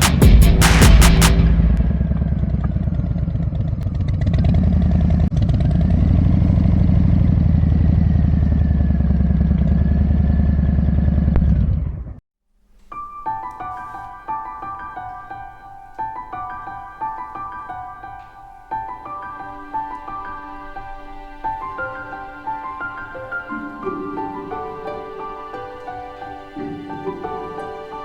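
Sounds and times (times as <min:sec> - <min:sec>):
motorcycle engine running: 0:01.6 - 0:12.0
soft piano music: 0:12.8 - 0:28.0.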